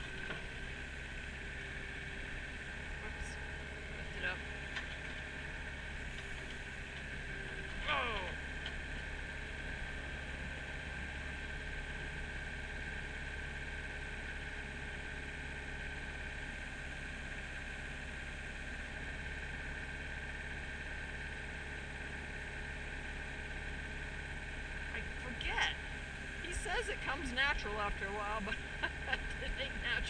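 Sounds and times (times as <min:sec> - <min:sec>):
diesel engine running: 0:00.0 - 0:30.0
high engine whine: 0:00.0 - 0:30.0.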